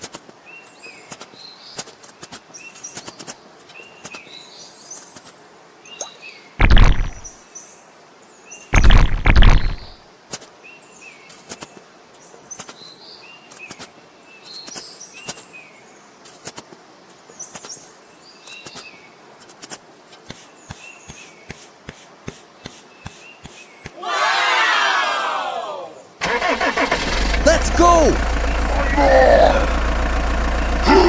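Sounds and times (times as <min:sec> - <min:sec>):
small birds chirping: 0:00.0 - 0:24.0, 0:30.4 - 0:31.0
loud low noise bursts: 0:06.6 - 0:07.3, 0:08.8 - 0:10.0
sharp clicks: 0:06.6 - 0:07.3, 0:08.7 - 0:10.0.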